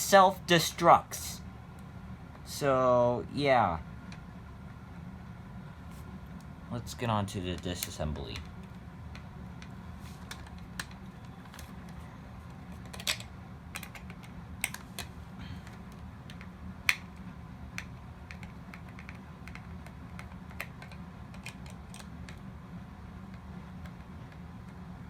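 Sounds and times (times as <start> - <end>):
steady low hum: 0.0 - 25.0
plastic toy parts clicking: 12.8 - 15.1.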